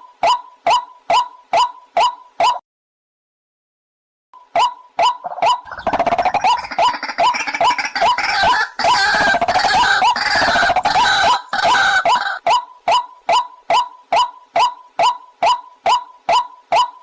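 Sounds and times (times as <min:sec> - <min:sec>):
bird croaking call series: 0:00.2 - 0:02.6, 0:04.6 - 0:17.0
harsh overlapping bird calls: 0:04.6 - 0:17.0.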